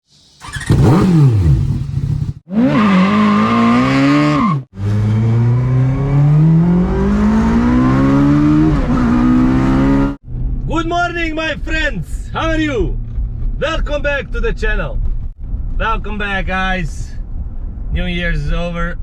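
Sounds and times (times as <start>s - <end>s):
car engine revving: 0.4s - 11.3s.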